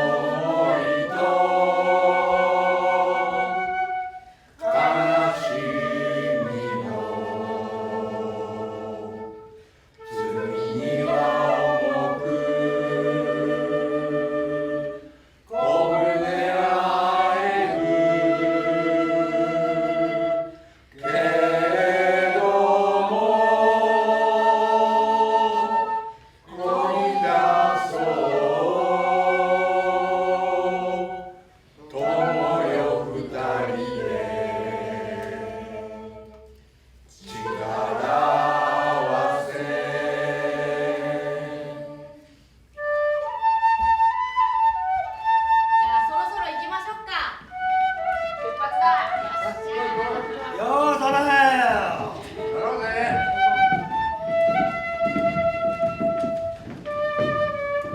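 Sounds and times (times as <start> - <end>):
group of voices singing: 0.0 - 42.4, 49.3 - 52.6
flute: 0.0 - 57.9.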